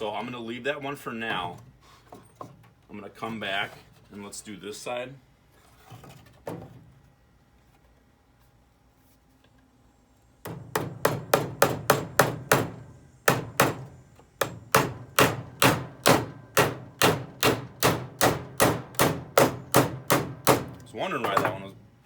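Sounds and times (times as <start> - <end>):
hammer driving nail into wood: 10.4 - 21.5.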